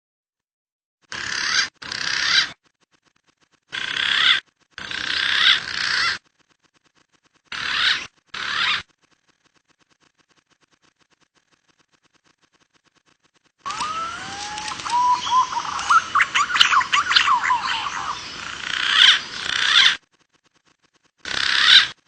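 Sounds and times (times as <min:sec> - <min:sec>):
bird harsh rasping calls: 0:01.1 - 0:02.6, 0:03.7 - 0:06.3, 0:07.5 - 0:08.9, 0:13.7 - 0:20.0, 0:21.2 - 0:22.0.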